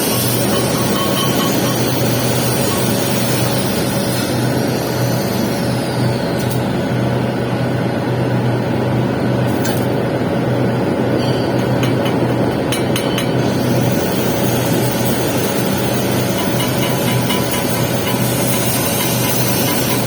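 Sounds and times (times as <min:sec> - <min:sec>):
welding arc crackling: 0:00.0 - 0:06.7, 0:11.6 - 0:20.0.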